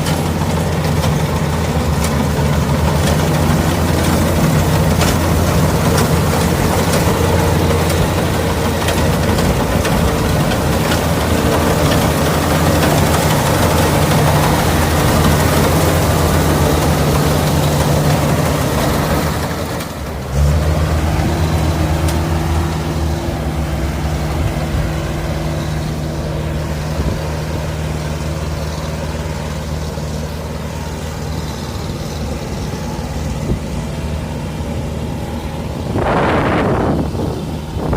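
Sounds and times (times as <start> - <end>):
combine harvester engine running: 0.0 - 37.9
wind buffeting microphone: 35.7 - 37.9.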